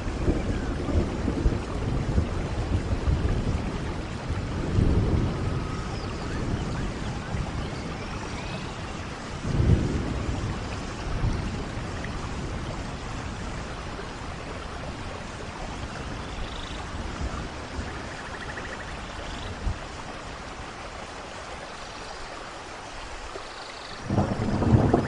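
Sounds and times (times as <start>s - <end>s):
low rumbles of thunder: 0.0s - 20.6s, 24.0s - 25.0s
steady rainfall: 0.0s - 25.0s.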